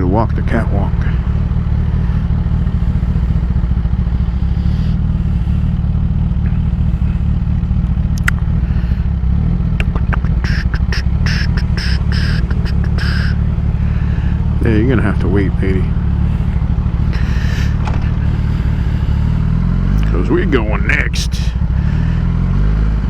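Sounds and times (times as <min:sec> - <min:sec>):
motorcycle engine idling: 0:00.0 - 0:23.0
quick high ticks: 0:08.1 - 0:08.9, 0:09.8 - 0:13.7.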